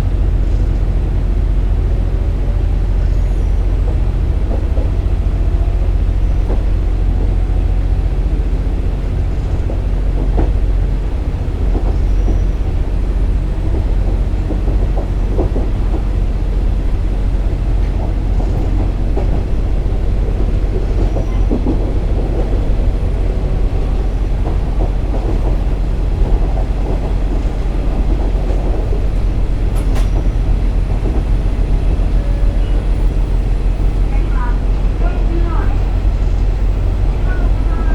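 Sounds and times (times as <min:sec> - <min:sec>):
railcar engine and wheels drone: 0:00.0 - 0:37.9.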